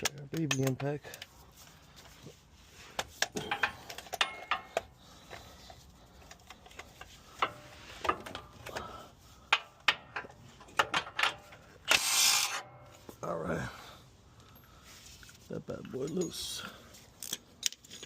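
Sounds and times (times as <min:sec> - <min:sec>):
metallic clicks of hand tools: 0:00.0 - 0:01.3.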